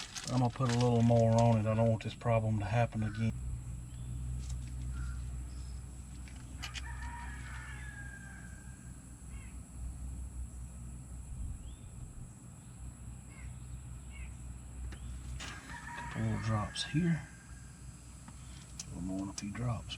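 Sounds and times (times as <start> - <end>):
steady low hum: 0.0 - 19.9
rooster crowing: 6.5 - 9.5, 15.4 - 18.0.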